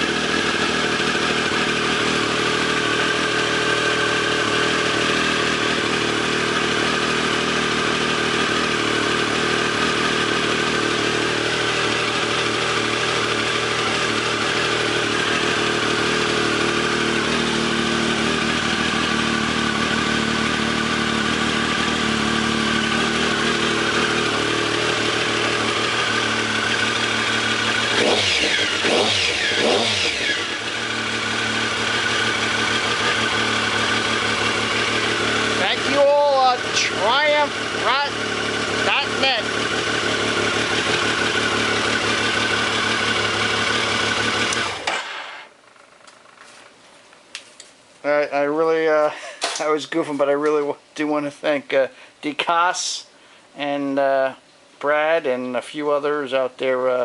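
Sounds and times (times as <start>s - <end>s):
motorcycle engine idling: 0.0s - 44.9s
engine revving: 0.0s - 45.2s.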